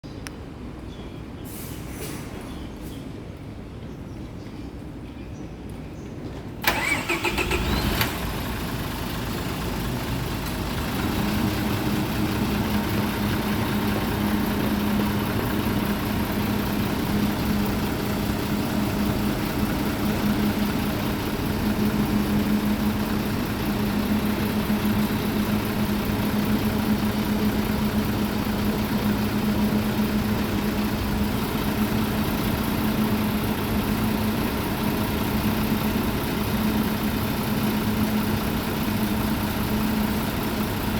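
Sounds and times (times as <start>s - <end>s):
bus diesel engine starting and idling: 6.6s - 40.9s.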